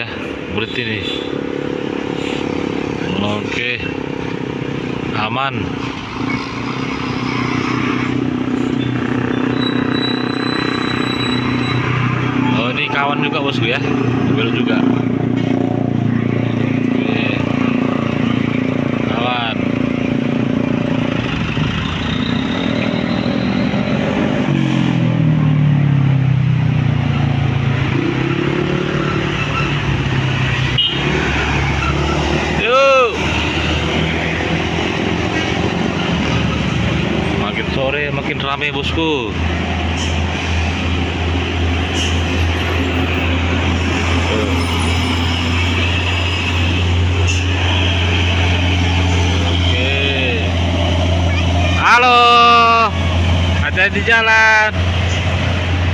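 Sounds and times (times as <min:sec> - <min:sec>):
tyre and road noise: 0:00.0 - 0:55.9
vehicle engines running: 0:00.0 - 0:55.9.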